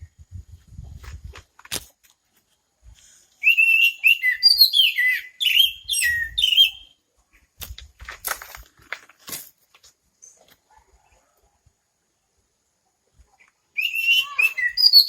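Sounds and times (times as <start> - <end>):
clicks and rustles: 1.0 - 2.6, 7.3 - 10.8
bird singing whistled notes: 3.4 - 7.0, 13.8 - 15.0.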